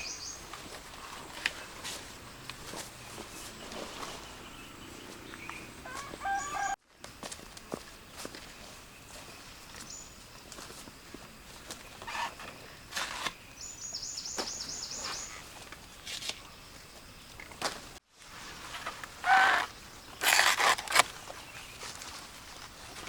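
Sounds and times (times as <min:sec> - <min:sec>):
rustling: 0:17.5 - 0:23.0
loud sharp rustling: 0:18.4 - 0:21.3.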